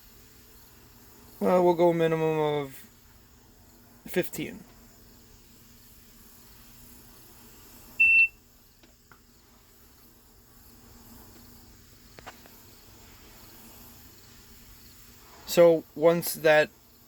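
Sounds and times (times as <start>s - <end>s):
short electronic beep: 8.0s - 8.4s.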